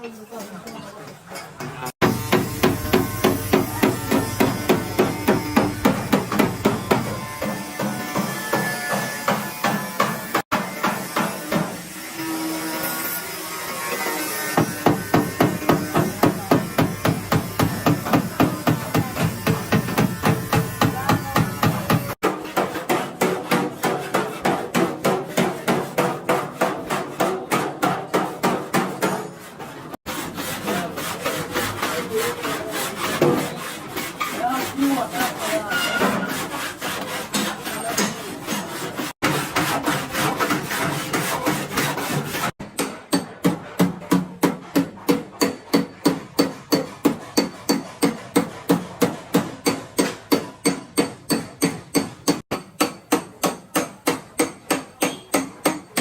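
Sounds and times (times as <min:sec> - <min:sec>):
rubbing and scraping on metal panel: 0:02.0 - 0:07.9, 0:14.4 - 0:42.6
hammer striking sheet metal: 0:02.0 - 0:11.9, 0:14.5 - 0:29.3, 0:30.1 - 0:56.0.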